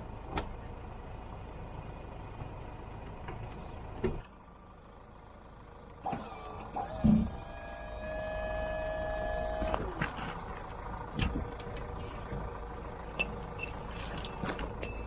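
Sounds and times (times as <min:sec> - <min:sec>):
low engine rumble: 0:00.0 - 0:15.0
lift motor whining: 0:06.0 - 0:10.1.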